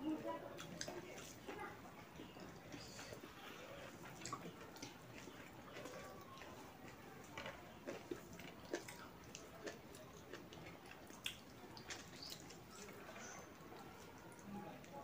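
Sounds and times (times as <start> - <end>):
wet chewing: 0.4 - 15.0
lip smacks: 2.6 - 7.0, 7.8 - 14.9.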